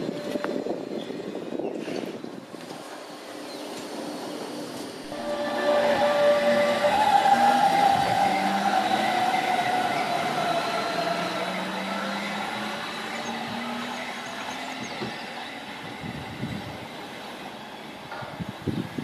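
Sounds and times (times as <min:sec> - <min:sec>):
train rumbling: 0:00.0 - 0:19.0
steady tones: 0:05.1 - 0:13.2.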